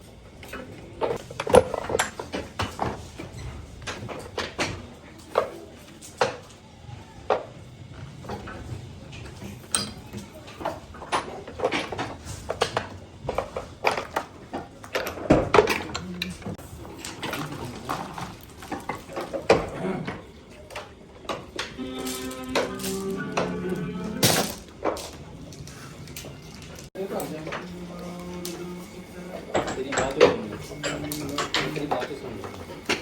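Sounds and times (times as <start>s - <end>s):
metal tools clinking: 21.6s - 27.7s, 28.4s - 33.0s.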